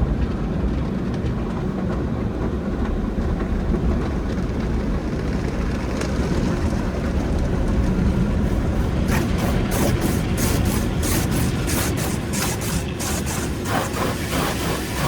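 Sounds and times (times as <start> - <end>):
car wash machinery: 0.0 - 15.0
car wash water spray: 7.5 - 15.0.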